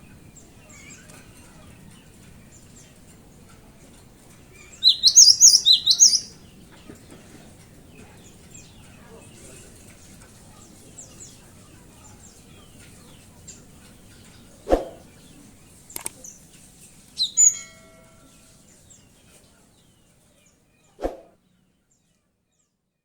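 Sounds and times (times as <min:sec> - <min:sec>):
bird chirping faintly: 0:04.5 - 0:06.5, 0:17.2 - 0:19.2
loud short bird call: 0:04.8 - 0:06.3.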